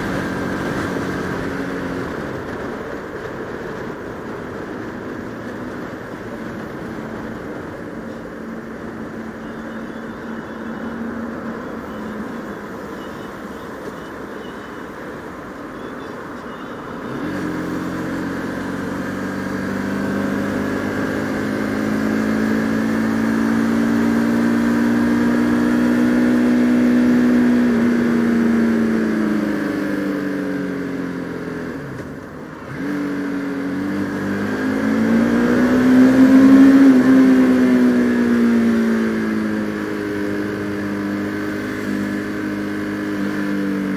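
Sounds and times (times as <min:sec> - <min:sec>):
wind and road noise: 0:00.0 - 0:43.9
motorcycle engine revving: 0:17.0 - 0:43.9.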